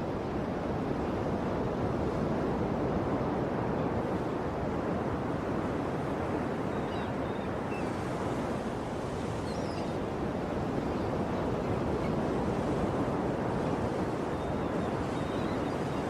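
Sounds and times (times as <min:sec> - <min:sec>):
ocean surf washing: 0:00.0 - 0:16.0
faint bird chirps: 0:09.2 - 0:10.0.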